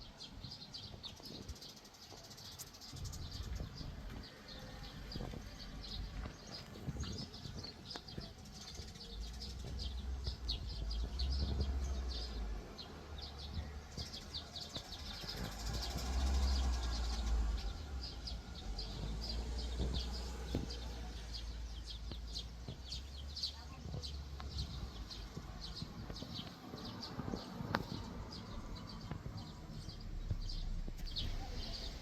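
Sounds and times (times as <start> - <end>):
songbirds chirping: 0.0 - 32.0
low rumble: 9.1 - 32.0.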